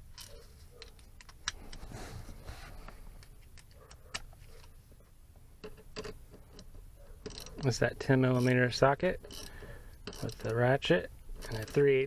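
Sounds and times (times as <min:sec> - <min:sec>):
hand tools clicking and clinking: 0:00.0 - 0:01.8, 0:05.6 - 0:10.7, 0:11.4 - 0:12.0.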